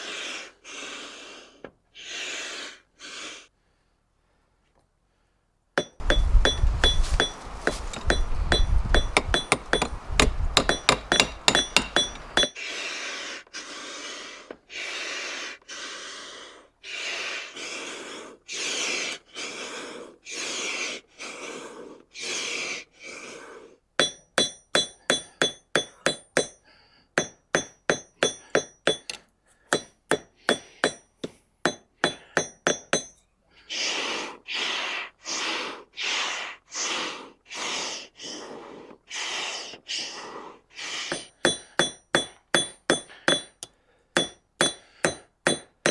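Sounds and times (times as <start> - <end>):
hammer striking steel on anvil: 5.8 - 12.5, 24.0 - 26.6, 27.2 - 29.2, 29.8 - 31.1, 31.7 - 33.2, 41.1 - 45.9.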